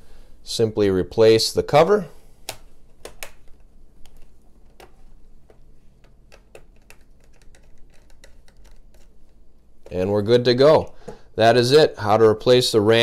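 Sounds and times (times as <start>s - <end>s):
plastic clicks and taps: 2.4s - 10.0s.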